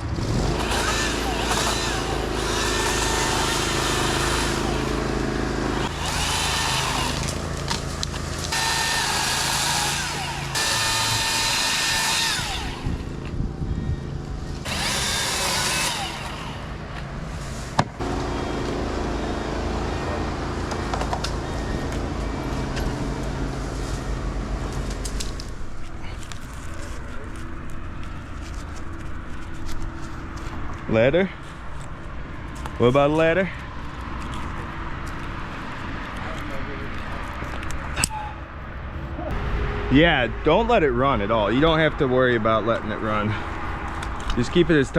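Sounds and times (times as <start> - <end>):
wood cracking: 0.2 - 12.7, 24.6 - 30.8
chainsaw cutting wood: 0.2 - 13.3, 14.6 - 17.0.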